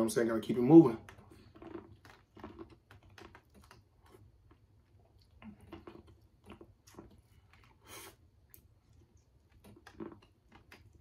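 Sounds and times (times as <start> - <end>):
chewing corn on the cob: 0.7 - 11.0.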